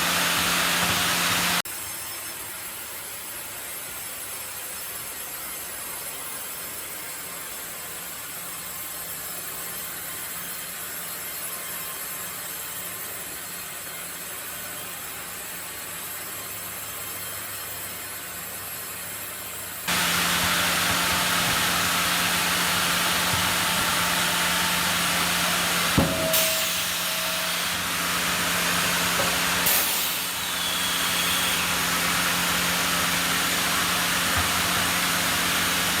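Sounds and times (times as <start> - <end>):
sawmill machinery running: 0.0 - 1.6, 19.9 - 36.0
sharp knocks: 25.2 - 27.0.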